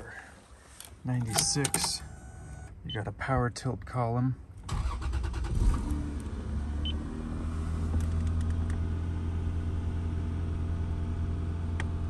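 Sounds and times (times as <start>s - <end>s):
car engine cranking and idling: 4.6s - 12.0s.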